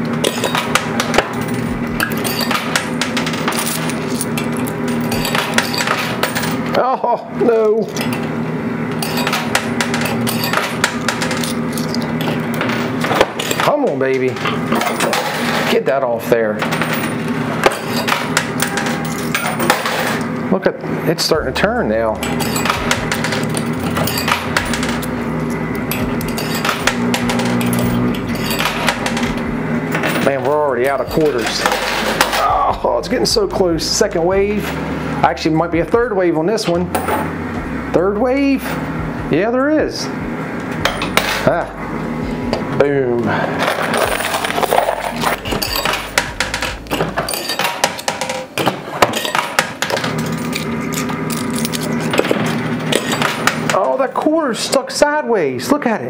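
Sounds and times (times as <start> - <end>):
coin pusher machine humming: 0.0 - 54.8
coins clicking and clinking: 0.1 - 6.7, 8.9 - 13.8, 14.4 - 15.7, 16.6 - 20.3, 22.2 - 32.6, 40.8 - 41.6, 43.6 - 53.8.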